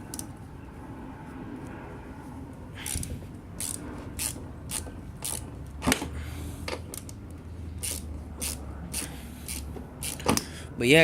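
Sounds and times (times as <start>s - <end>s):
ratchet wrench clicking: 2.8s - 5.5s, 7.8s - 10.5s.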